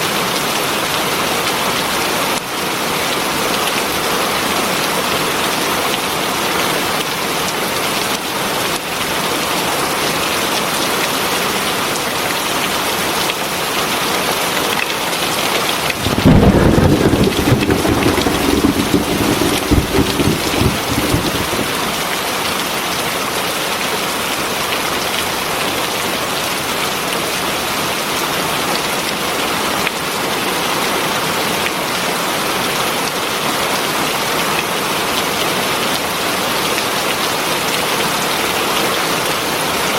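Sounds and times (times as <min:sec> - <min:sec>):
heavy rain falling: 0:15.8 - 0:22.3
thunder crack and rumble: 0:15.9 - 0:22.1.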